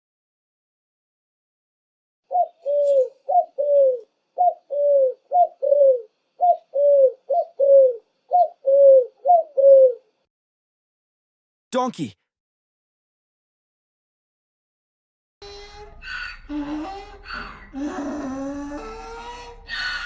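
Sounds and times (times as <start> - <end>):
pigeon cooing: 2.3 - 10.1, 15.4 - 20.0.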